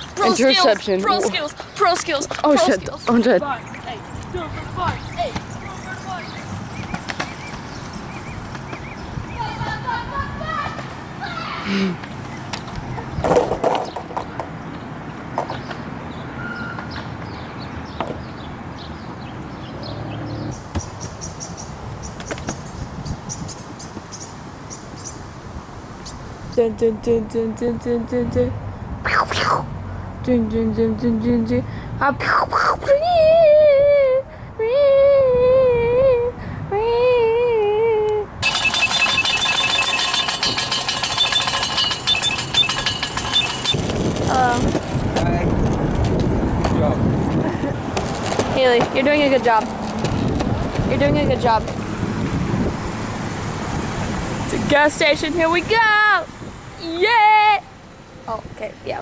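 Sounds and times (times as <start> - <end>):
birds chirping: 0.0 - 25.4, 38.4 - 45.0
faint repeating high tones: 38.4 - 43.8.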